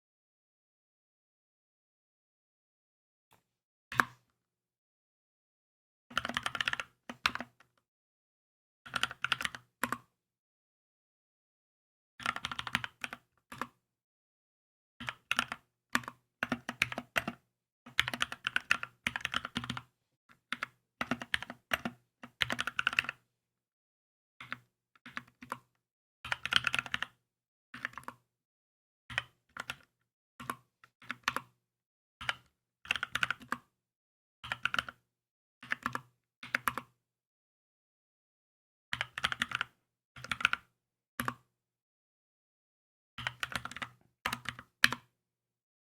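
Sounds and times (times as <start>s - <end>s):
mechanical keyboard typing: 6.1s - 7.5s, 18.0s - 19.9s, 39.0s - 40.6s, 43.2s - 45.0s.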